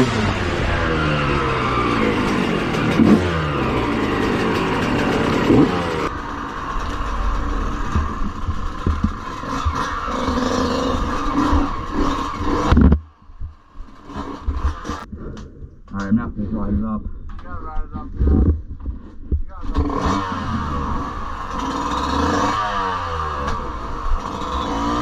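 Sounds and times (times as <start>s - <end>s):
dirt bike engine revving: 0.0s - 15.1s, 19.6s - 25.0s
knocks and clatter: 2.1s - 16.2s.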